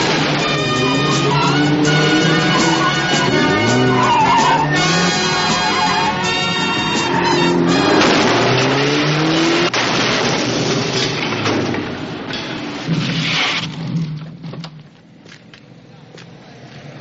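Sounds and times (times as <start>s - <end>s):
film music score: 0.0s - 9.2s
car engine revving: 0.0s - 9.8s
rushing tyre and road noise: 0.0s - 17.0s.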